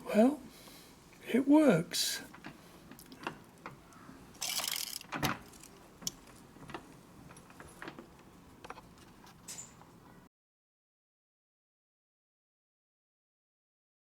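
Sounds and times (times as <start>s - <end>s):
metal parts rattle: 4.4s - 5.8s
small metal parts clicking: 4.4s - 6.2s.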